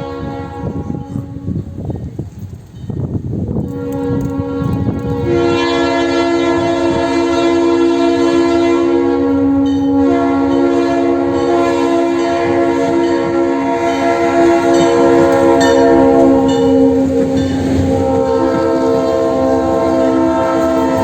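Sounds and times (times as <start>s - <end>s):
train air horn blast: 0.0s - 2.0s, 3.6s - 21.0s.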